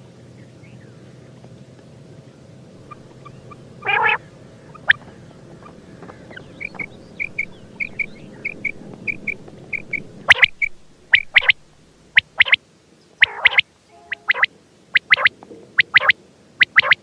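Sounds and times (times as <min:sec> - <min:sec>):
quail high chirps: 0:02.8 - 0:12.6, 0:13.2 - 0:17.0
quail rasping call: 0:02.8 - 0:12.6, 0:13.2 - 0:17.0.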